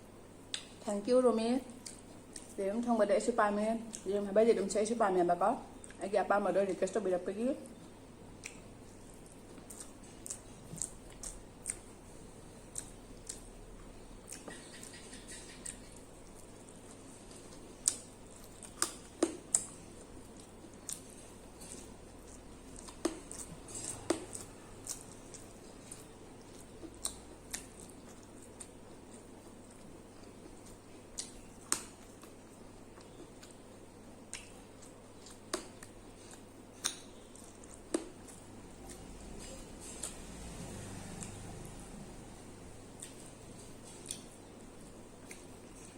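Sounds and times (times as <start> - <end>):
wet mouth clicks and smacks: 0.5 - 0.8, 14.3 - 16.8, 34.3 - 38.4
wet chewing smacks: 7.7 - 41.9, 43.0 - 44.5.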